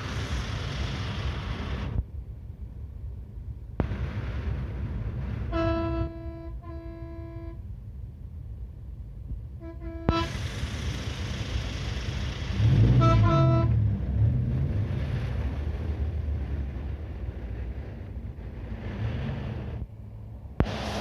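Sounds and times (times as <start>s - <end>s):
truck engines rumbling: 0.0s - 21.0s
truck horn blasts: 5.5s - 7.6s, 9.6s - 10.4s, 12.6s - 14.0s.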